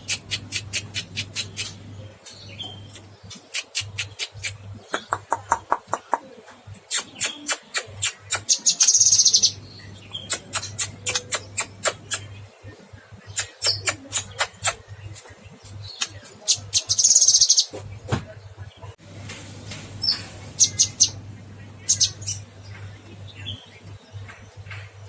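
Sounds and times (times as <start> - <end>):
bird chipping and trilling: 0.0 - 6.2, 6.8 - 18.0, 20.0 - 24.8
steady low hum: 17.8 - 25.0.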